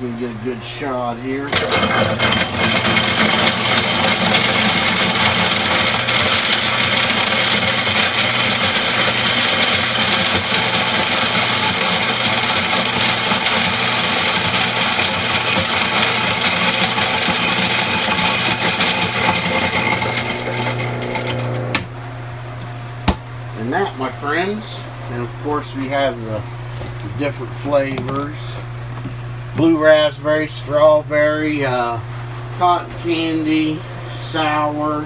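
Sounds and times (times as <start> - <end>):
snow cone machine shaving ice: 1.5 - 21.9.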